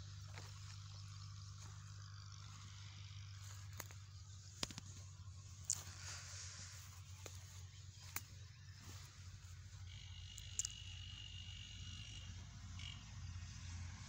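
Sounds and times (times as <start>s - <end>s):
insect trilling: 0.0s - 13.4s
constant low hum: 0.0s - 14.0s
sharp clicks: 10.3s - 10.9s.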